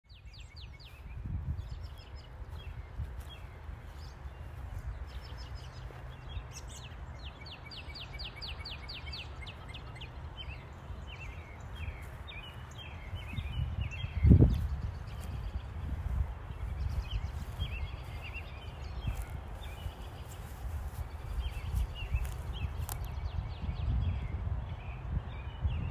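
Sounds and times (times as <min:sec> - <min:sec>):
birds chirping: 0:00.1 - 0:25.9.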